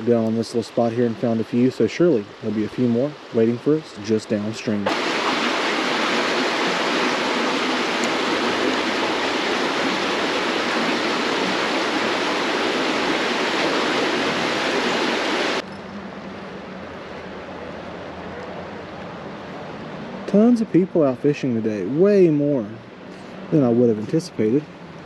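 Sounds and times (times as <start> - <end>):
creek water rushing: 0.0 - 15.6.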